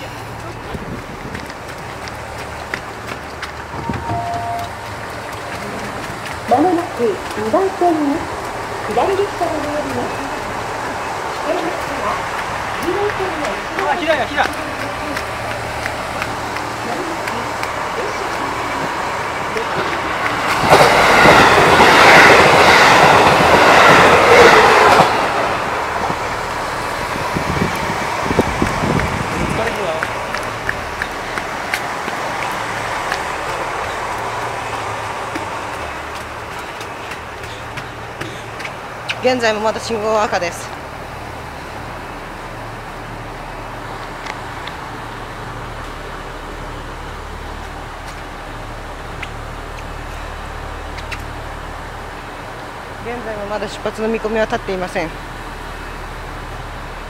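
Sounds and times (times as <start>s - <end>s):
wheels clattering over rail joints: 0.0s - 41.0s
diesel train passing: 0.0s - 57.0s.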